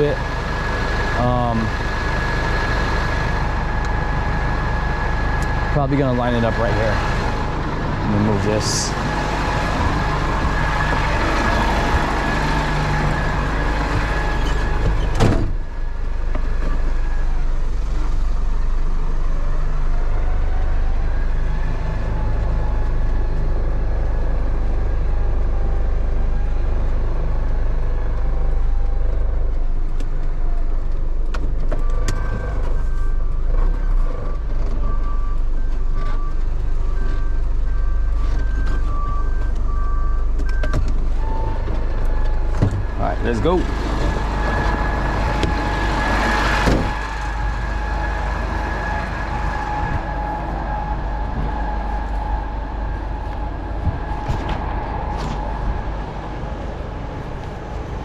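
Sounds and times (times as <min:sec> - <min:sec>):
tow truck engine running: 0:00.0 - 0:58.0
reversing alarm beeping: 0:31.8 - 0:57.5.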